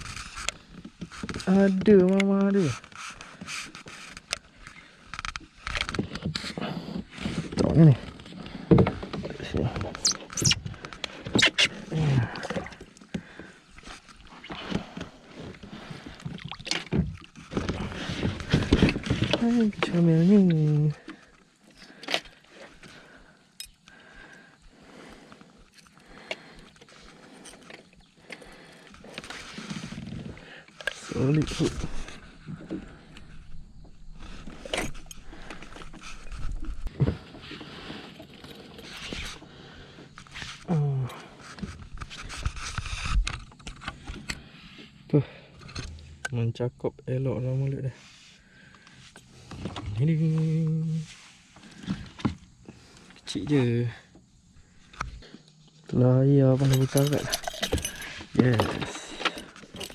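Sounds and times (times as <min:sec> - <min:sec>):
clicks and metallic clinks: 0:56.6 - 0:59.9.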